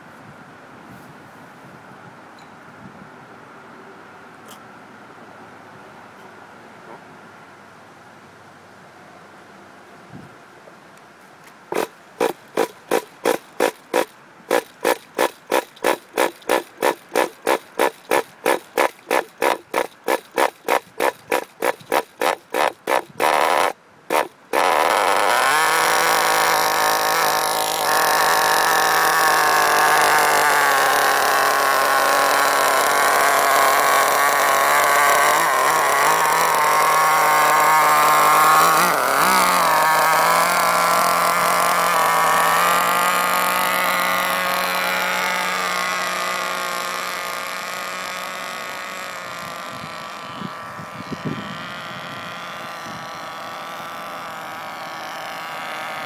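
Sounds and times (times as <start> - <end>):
rc car nitro engine running: 11.7 - 56.0.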